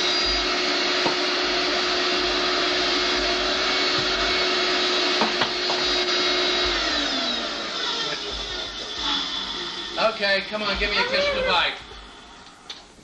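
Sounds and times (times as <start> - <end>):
vacuum cleaner motor: 0.0 - 12.7.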